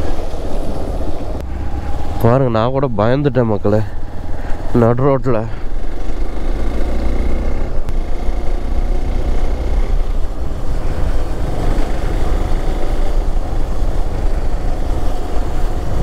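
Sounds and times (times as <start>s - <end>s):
motorcycle engine running: 5.4s - 16.0s.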